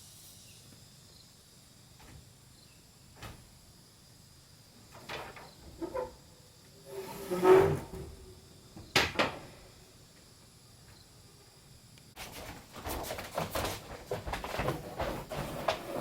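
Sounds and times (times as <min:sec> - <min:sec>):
wood scraping: 0:06.8 - 0:08.2, 0:12.2 - 0:16.0.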